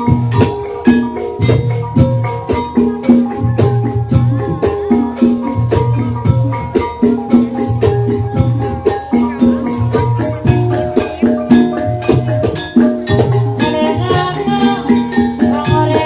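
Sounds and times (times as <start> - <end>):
gamelan mallet melody: 0.0 - 16.0.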